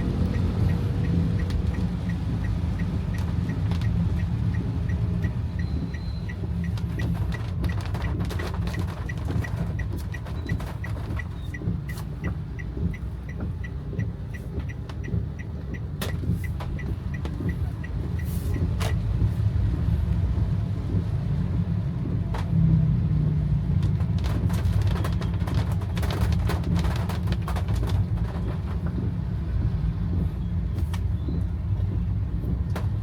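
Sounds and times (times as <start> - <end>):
car engine and road rumble: 0.0 - 33.0
rain tapping on car roof: 0.0 - 33.0
light high-pitched ticking: 0.1 - 19.9.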